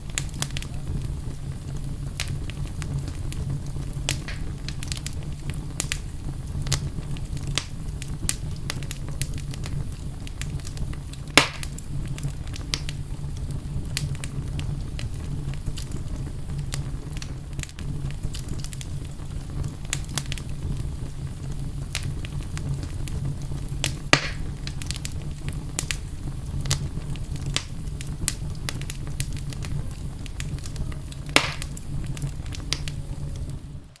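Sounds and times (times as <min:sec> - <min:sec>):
low rumble of flames: 0:00.0 - 0:34.0
wood fire crackling: 0:00.0 - 0:34.0.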